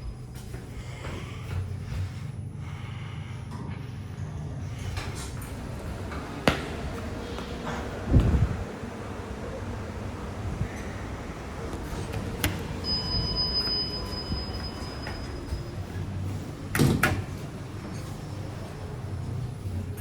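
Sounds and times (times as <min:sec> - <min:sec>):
lift doors sliding: 0:04.2 - 0:20.0.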